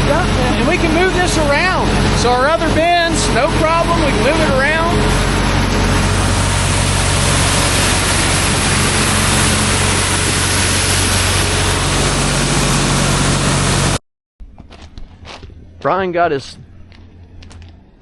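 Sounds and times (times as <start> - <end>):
engine running steadily: 0.0 - 18.0
loud even rushing noise: 0.4 - 14.0.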